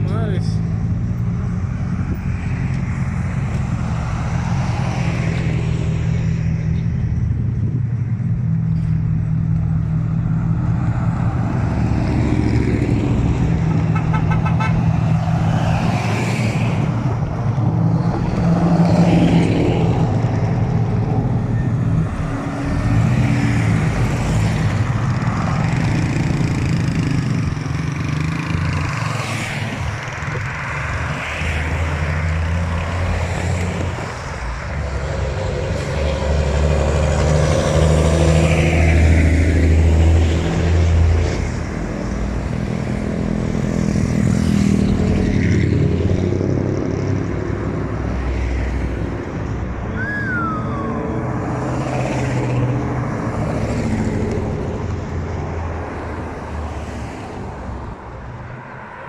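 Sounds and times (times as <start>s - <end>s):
trucks and cars passing: 0.0s - 59.0s.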